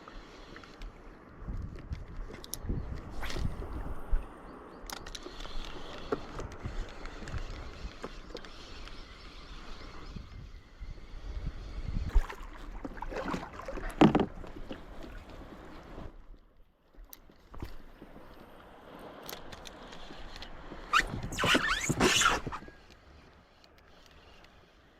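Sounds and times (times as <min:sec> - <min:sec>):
water sloshing around a boat: 0:12.0 - 0:22.8.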